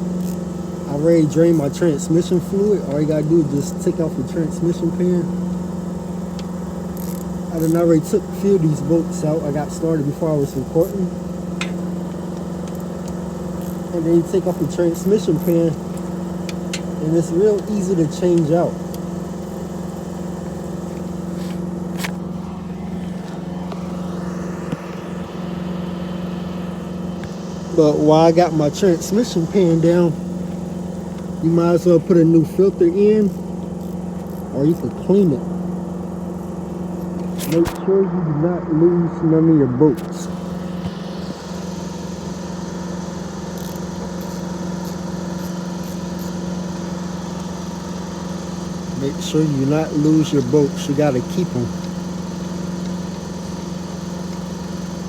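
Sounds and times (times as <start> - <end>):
steady mechanical hum: 0.0 - 55.0
sharp click: 11.6 - 11.8, 37.0 - 37.9.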